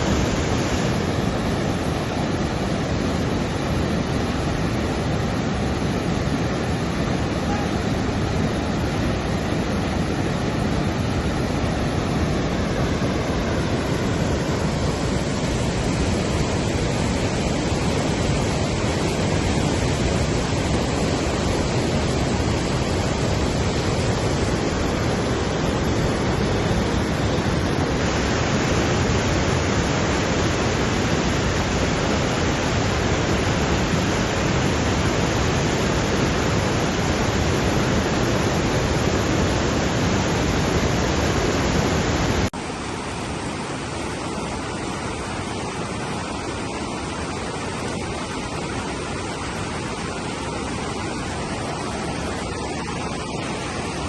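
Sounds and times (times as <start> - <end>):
fast-flowing floodwater rushing: 0.0 - 54.0.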